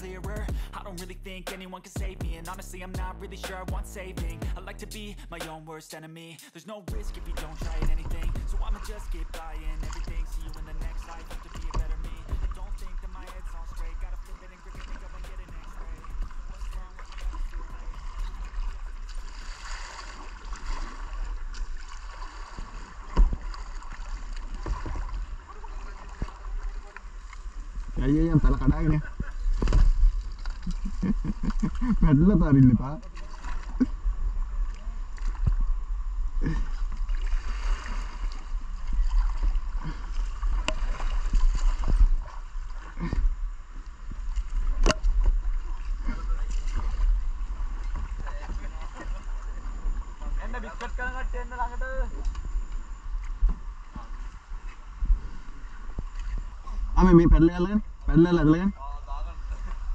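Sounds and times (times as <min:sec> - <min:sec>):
river rapids rushing: 0:06.9 - 0:20.3
river water splashing and gurgling: 0:06.9 - 0:58.5.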